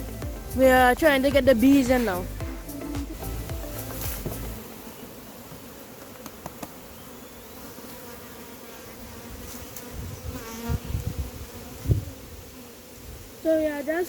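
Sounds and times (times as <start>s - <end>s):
low bumps: 0.0s - 4.6s
bees buzzing: 0.0s - 14.0s.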